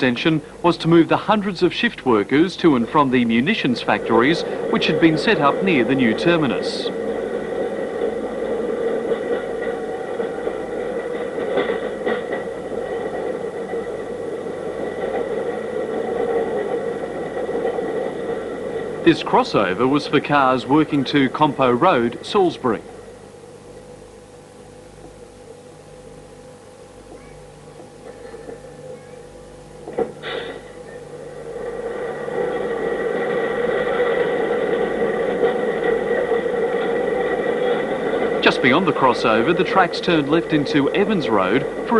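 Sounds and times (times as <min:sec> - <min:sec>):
mechanical running drone: 0:00.0 - 0:41.9.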